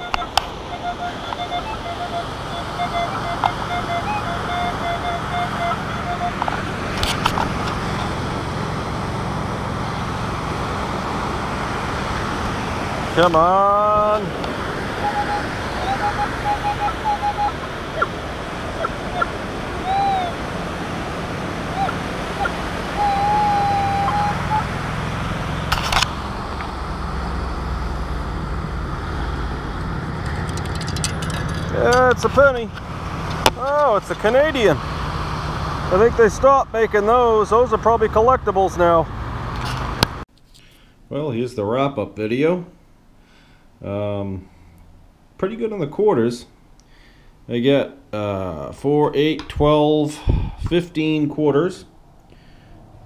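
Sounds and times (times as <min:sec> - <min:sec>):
metal detector stuttering tone: 0:00.0 - 0:08.2, 0:15.0 - 0:18.1, 0:18.8 - 0:20.4, 0:21.7 - 0:24.7, 0:30.1 - 0:32.7.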